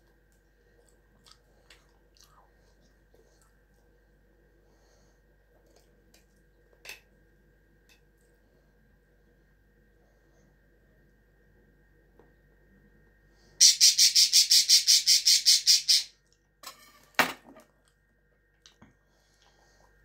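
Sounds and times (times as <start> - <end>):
bird chirping harshly: 13.6 - 16.1.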